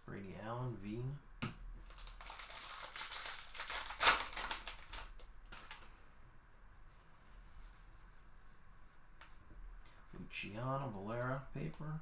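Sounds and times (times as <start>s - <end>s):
card wrapper rustling: 1.9s - 5.9s.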